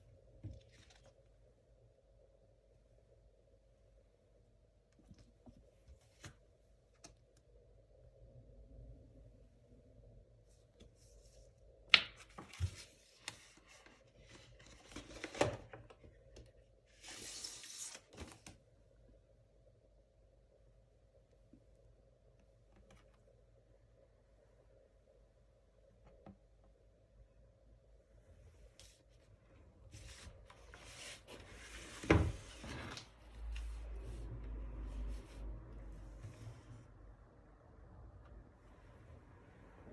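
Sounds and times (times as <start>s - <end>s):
cardboard rubbing and sliding: 29.9s - 34.3s.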